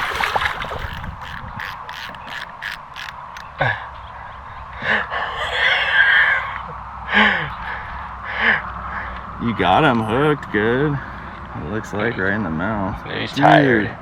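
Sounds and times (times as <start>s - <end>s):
fishing reel ratcheting clicks: 0.7s - 3.5s.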